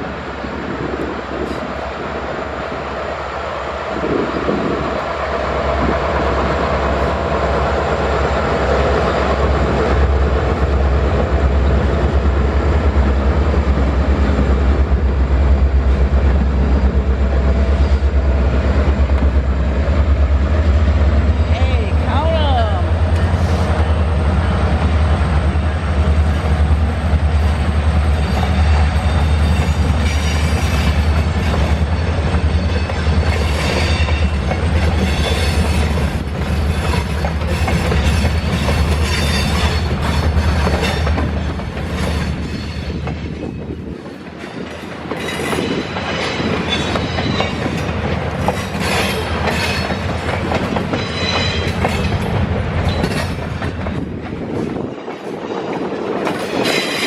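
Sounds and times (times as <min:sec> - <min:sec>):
train wheels clacking over rail joints: 0:26.2 - 0:57.0.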